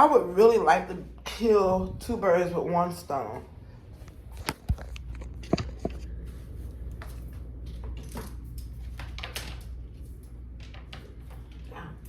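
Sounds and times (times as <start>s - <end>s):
steady low hum: 0.0s - 12.0s
objects knocking and rustling: 4.3s - 6.2s.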